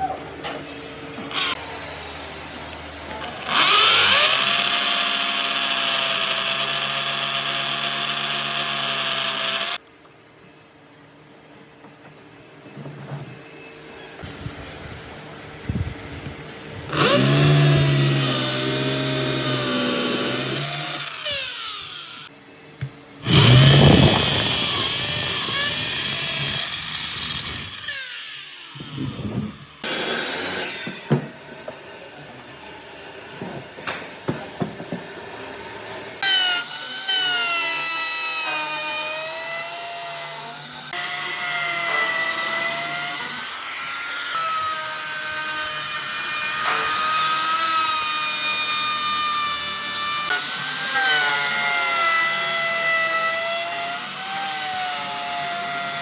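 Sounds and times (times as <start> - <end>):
power tools whining on wood: 1.2 - 9.8, 16.9 - 22.3, 23.2 - 31.0, 36.2 - 56.0.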